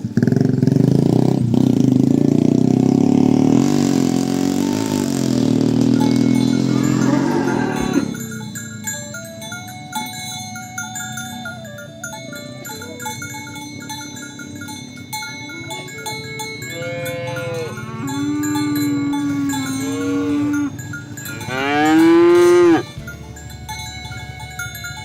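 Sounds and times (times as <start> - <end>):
cowbells ringing: 0.0 - 25.0
cattle mooing: 2.8 - 8.8, 15.1 - 23.5.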